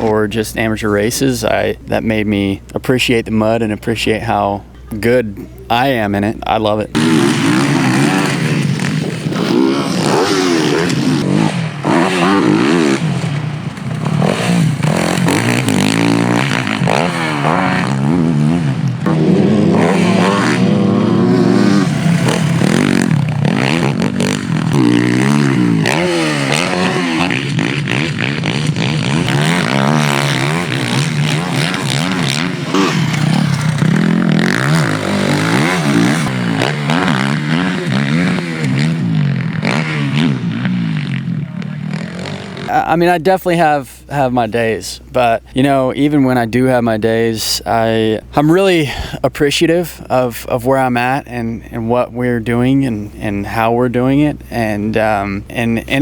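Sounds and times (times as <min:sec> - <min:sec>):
motocross bike engine revving: 0:00.0 - 0:46.9, 0:47.6 - 0:56.0.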